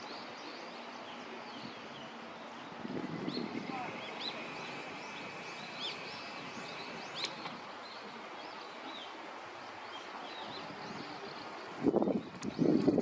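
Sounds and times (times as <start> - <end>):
outdoor background hiss: 0.0 - 12.1
small songbirds chirping: 0.0 - 13.0
sharp click: 5.8 - 7.6.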